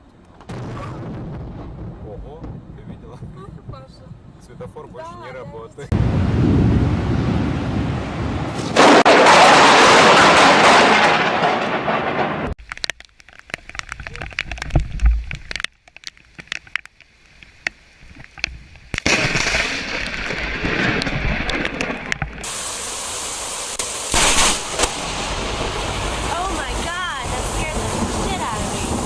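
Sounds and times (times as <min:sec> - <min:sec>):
loud rumbling thunder: 0:00.5 - 0:04.8, 0:05.9 - 0:12.6, 0:19.0 - 0:22.7, 0:24.1 - 0:29.0
rain and wind rushing: 0:00.5 - 0:29.0
sharp crackles and pops: 0:08.5 - 0:29.0.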